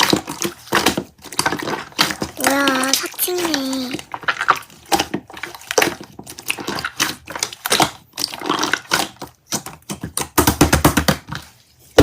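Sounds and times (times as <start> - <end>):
slime squeezed by hand crackling: 2.4 - 4.0.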